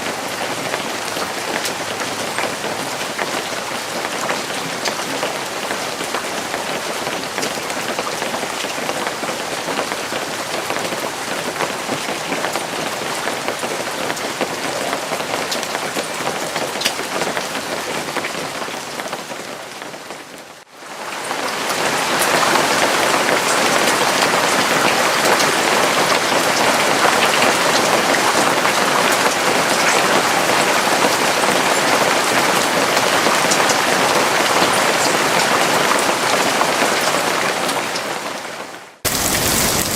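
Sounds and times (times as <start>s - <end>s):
individual raindrops: 0.0s - 39.9s
steady rain falling: 0.0s - 39.9s.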